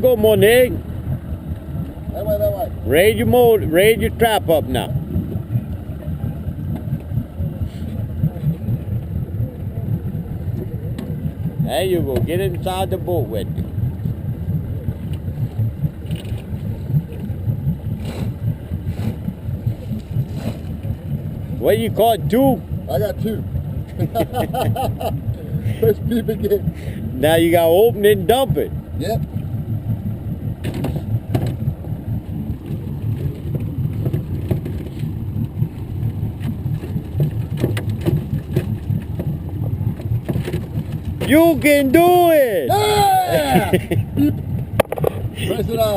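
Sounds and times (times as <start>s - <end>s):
low rumble: 0.0s - 45.9s
outboard motor idling: 0.0s - 45.9s
crab trap knocking and rattling: 33.4s - 35.0s, 36.4s - 41.4s, 44.7s - 45.2s.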